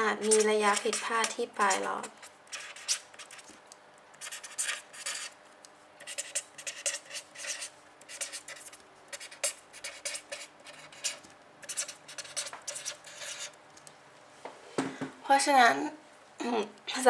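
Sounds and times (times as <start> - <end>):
pen scratching on paper: 0.0 - 3.5, 4.2 - 5.4, 6.0 - 13.6.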